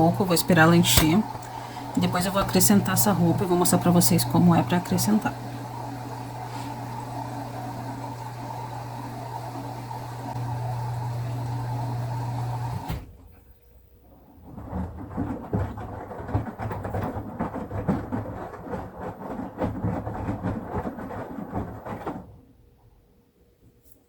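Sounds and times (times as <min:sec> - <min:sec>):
washing machine hum: 0:00.0 - 0:23.4
laundry sloshing and thudding in drum: 0:14.2 - 0:22.5.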